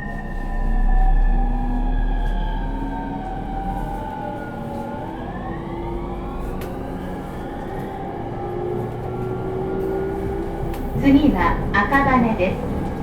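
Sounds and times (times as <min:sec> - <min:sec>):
train motor hum: 0:06.6 - 0:13.0.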